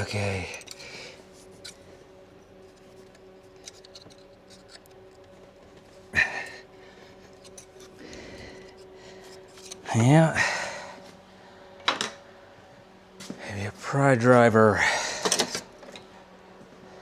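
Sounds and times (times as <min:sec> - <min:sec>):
hand tools clicking and scraping: 0:00.0 - 0:01.9, 0:02.6 - 0:10.2
steady background hum: 0:00.0 - 0:17.0.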